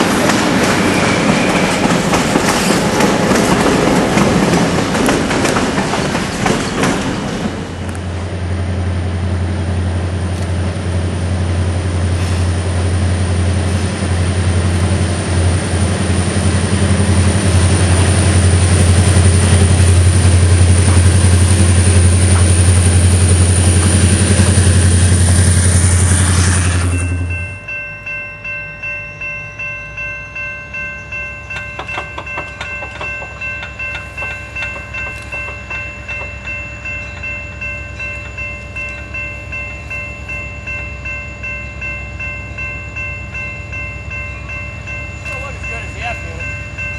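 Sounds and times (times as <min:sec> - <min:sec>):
train wheels clickety-clack: 0:00.0 - 0:08.0, 0:17.2 - 0:25.4, 0:31.5 - 0:37.4
diesel locomotive engine running: 0:00.0 - 0:46.9
steady high tones: 0:16.1 - 0:46.9.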